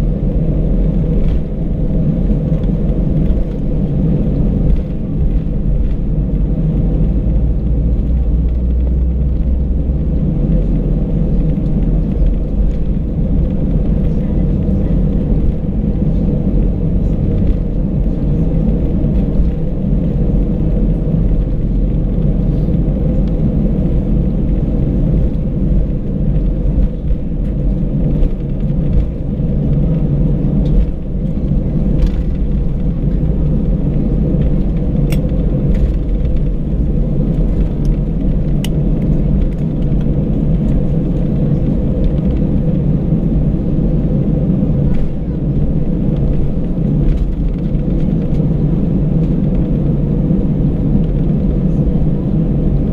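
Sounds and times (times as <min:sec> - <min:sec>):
jet engine cabin rumble: 0:00.0 - 0:52.9.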